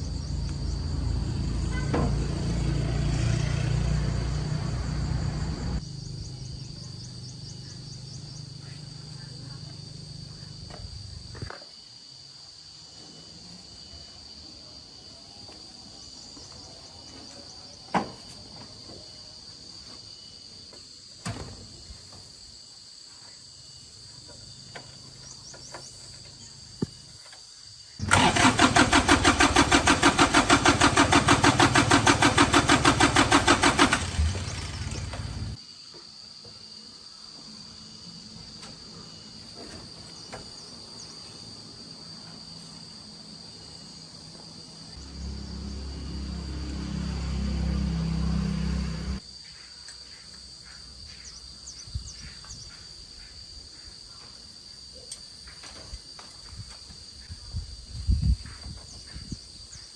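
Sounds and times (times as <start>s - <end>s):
crickets chirping: 0.0s - 59.9s
tractor engine cranking: 28.0s - 35.6s.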